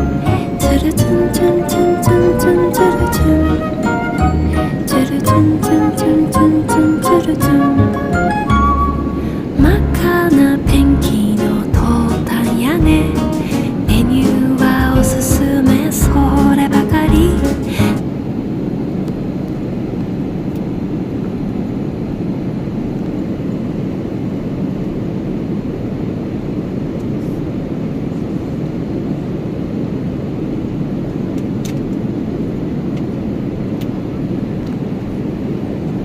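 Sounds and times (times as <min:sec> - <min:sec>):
train rumbling inside carriage: 0:00.0 - 0:18.0.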